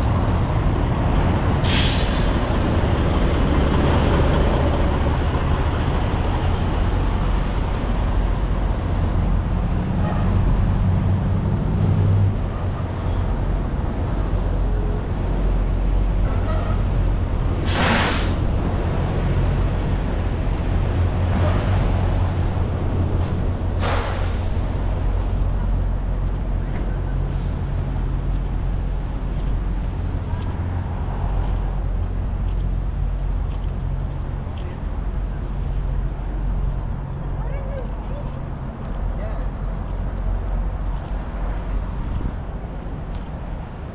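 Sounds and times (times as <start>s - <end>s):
diesel truck engines idling: 0.0s - 16.1s
air brake hisses: 1.6s - 2.5s, 17.6s - 18.4s, 23.8s - 24.6s.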